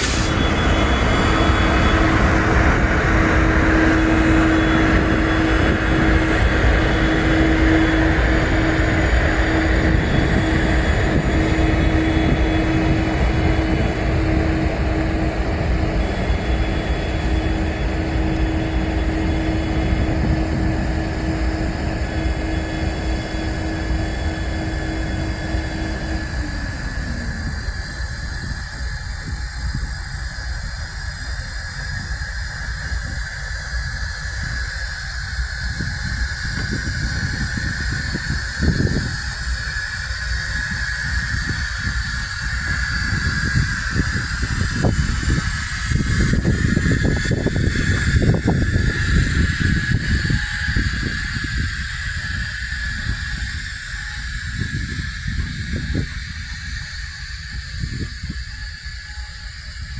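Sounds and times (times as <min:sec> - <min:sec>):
steady tone: 0:00.0 - 0:29.8
diesel locomotives humming: 0:00.0 - 0:59.9.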